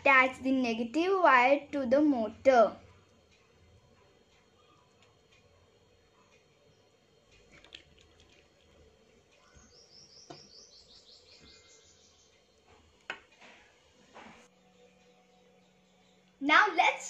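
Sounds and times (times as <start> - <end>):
bird chirping: 4.5 - 5.0, 9.4 - 12.6.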